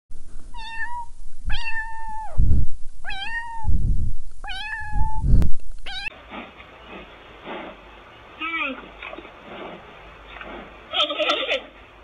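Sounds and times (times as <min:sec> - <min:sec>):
low thumps: 0:00.2 - 0:06.0.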